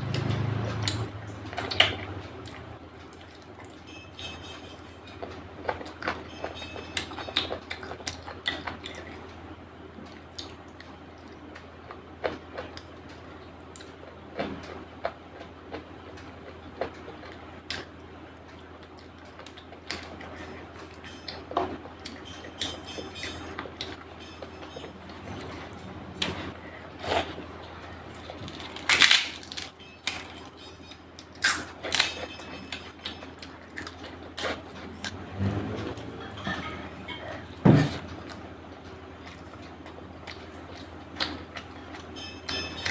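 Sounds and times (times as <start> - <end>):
steady low hum: 0.0 - 42.9
eating clicks and crunches: 27.8 - 35.2.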